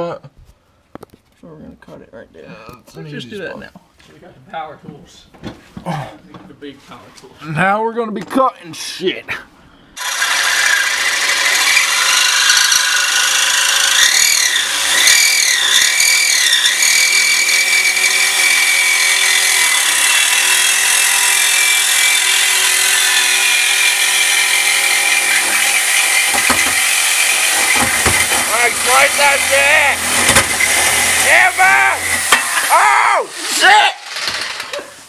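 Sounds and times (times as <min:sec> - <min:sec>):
power tool cutting metal: 0:10.0 - 0:35.0.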